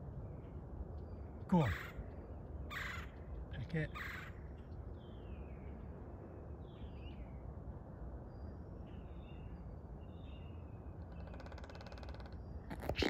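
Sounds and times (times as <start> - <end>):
faint bird calls: 1.4 - 4.5, 11.1 - 13.0.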